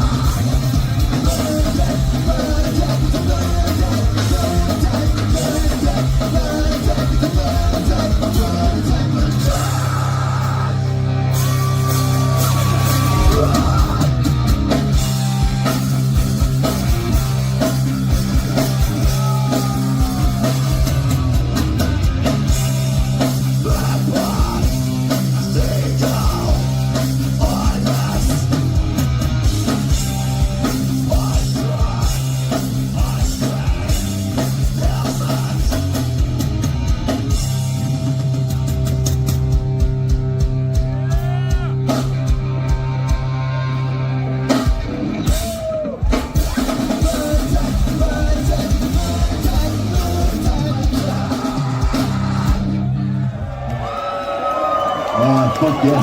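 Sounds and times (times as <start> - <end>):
person singing: 0.0 - 14.2, 19.0 - 20.9, 23.4 - 28.6, 46.8 - 52.6
bass guitar: 0.0 - 56.0
distorted electric guitars: 0.0 - 56.0
fast drums: 0.0 - 56.0.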